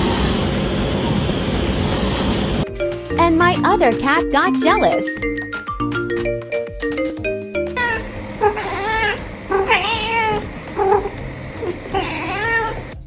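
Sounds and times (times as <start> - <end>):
cat meowing: 7.8 - 12.9.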